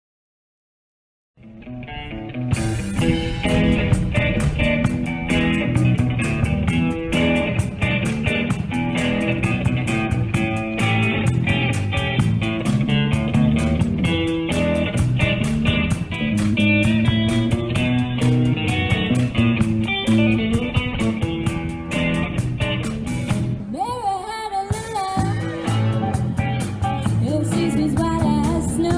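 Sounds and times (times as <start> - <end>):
bluesy guitar music with beat: 1.4 - 28.9.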